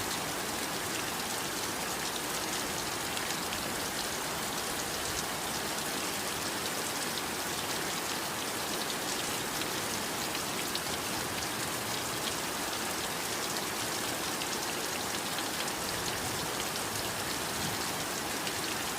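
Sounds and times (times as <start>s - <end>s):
heavy rain: 0.0s - 18.9s.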